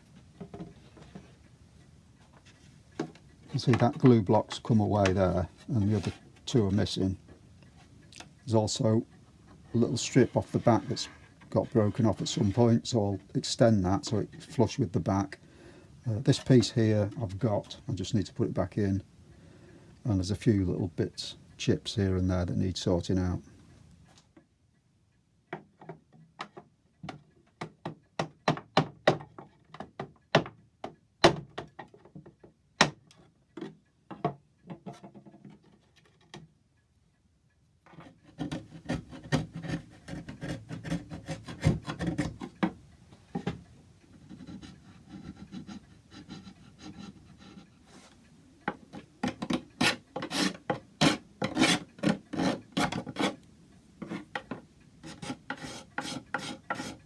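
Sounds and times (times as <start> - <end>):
hand tool rasping wood: 9.7 - 12.9, 38.0 - 42.8, 44.2 - 48.1, 49.2 - 57.0.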